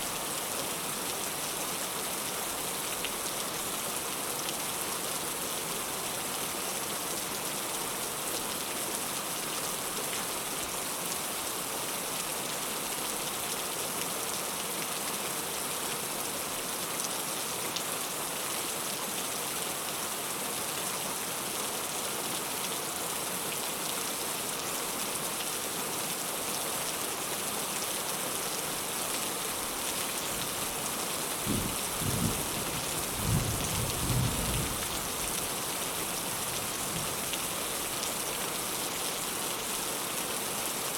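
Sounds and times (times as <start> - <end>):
heavy rain falling: 26.4 - 40.9
low rumble of thunder: 31.4 - 34.9.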